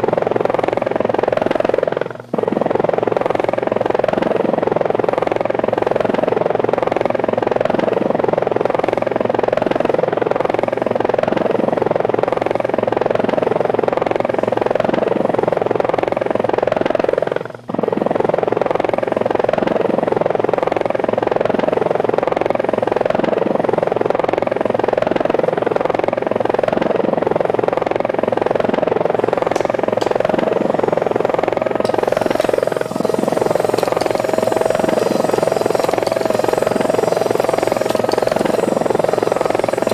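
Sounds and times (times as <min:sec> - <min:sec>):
toy helicopter rotors whirring: 0:29.6 - 0:39.9.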